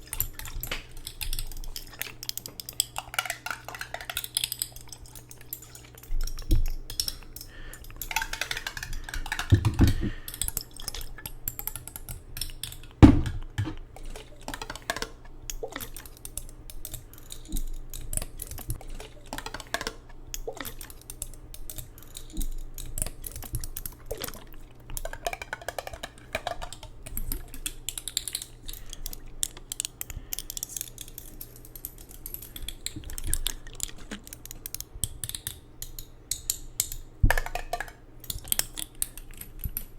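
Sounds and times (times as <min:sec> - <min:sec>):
tapping on hard objects: 0:07.8 - 0:15.2.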